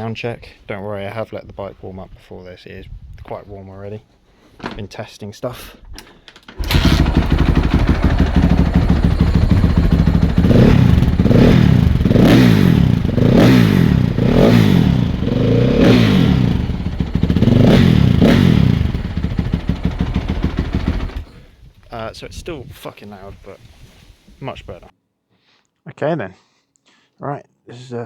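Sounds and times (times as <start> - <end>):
motorcycle engine revving: 6.6 - 21.3.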